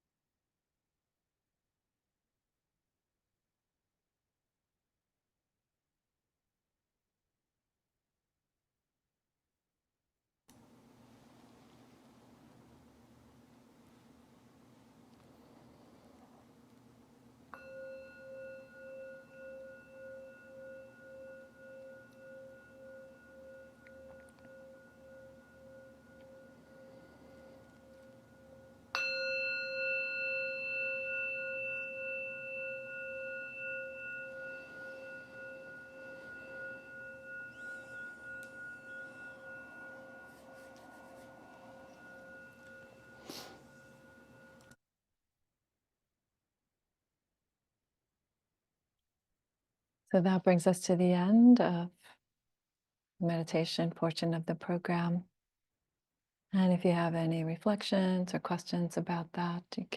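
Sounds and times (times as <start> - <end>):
meditation bell ringing: 17.5 - 44.8.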